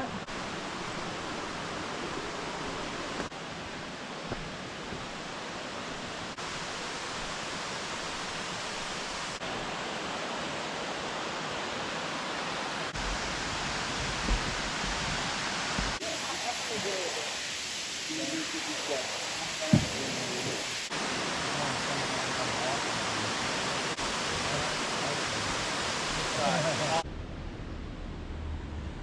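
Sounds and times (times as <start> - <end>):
waterfall roaring: 0.0 - 27.0
low rumble: 27.0 - 29.0.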